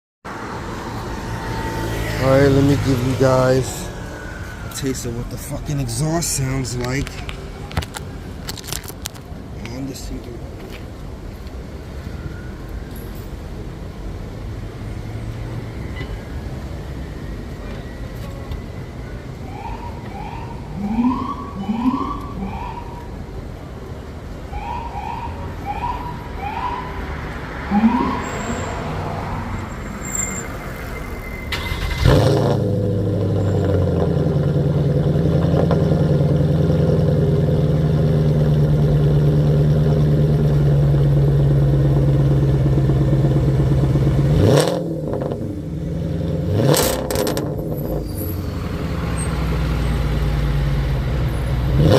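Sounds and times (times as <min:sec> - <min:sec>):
car engine revving: 0:27.4 - 0:30.5, 0:31.5 - 0:48.0, 0:51.6 - 0:51.9.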